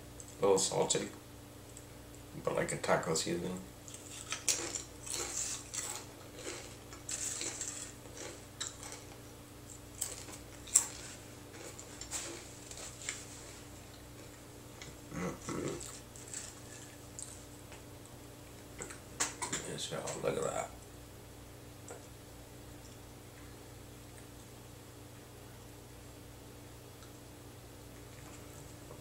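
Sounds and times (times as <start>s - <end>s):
chewing crunchy chips: 3.8s - 17.8s.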